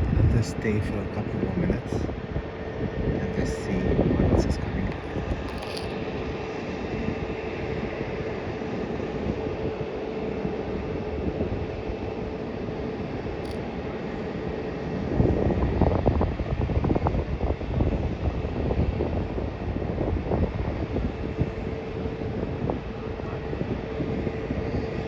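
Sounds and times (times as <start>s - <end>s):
distant jet engine hum: 0.0s - 25.0s
faint held whine: 0.0s - 25.0s
wind buffeting microphone: 0.0s - 25.0s.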